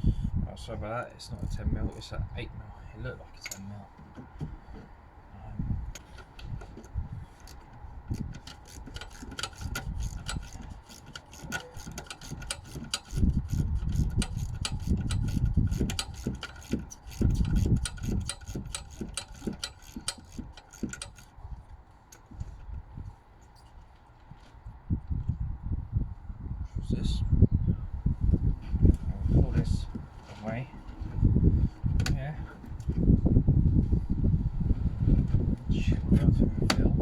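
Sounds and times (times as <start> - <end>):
socket ratchet clicking: 7.4 - 21.3.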